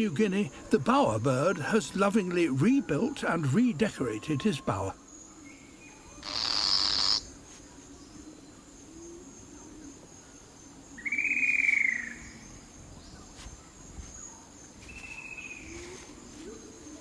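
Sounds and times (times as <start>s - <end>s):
high-pitched insect drone: 6.2s - 7.3s.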